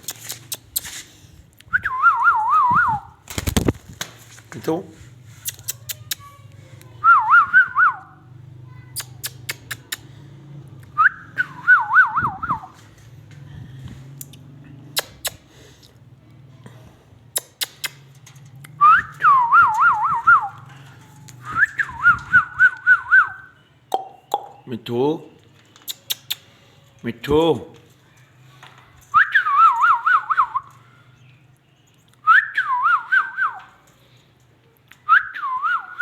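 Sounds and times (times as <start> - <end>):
sharp clicks: 9.0 - 10.1, 17.4 - 18.8
trilled whistling: 11.0 - 12.8, 18.8 - 20.7, 21.4 - 23.6, 29.1 - 30.8, 32.2 - 33.7, 35.1 - 36.0.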